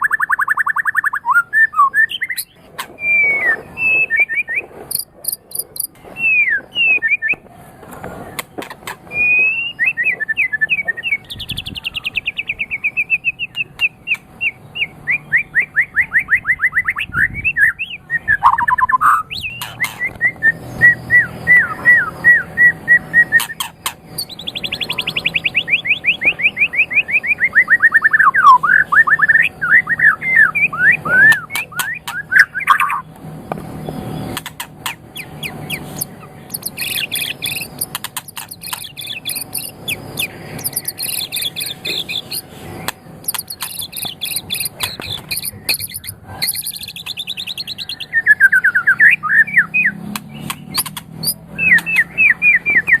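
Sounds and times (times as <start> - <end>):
songbird singing: 0.0 - 53.0
sharp clicks: 4.9 - 6.0, 34.3 - 47.2, 50.1 - 52.0.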